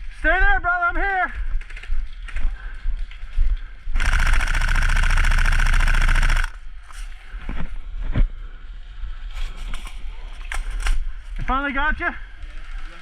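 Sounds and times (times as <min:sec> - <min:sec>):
airsoft rifle full-auto burst: 0:04.0 - 0:06.6.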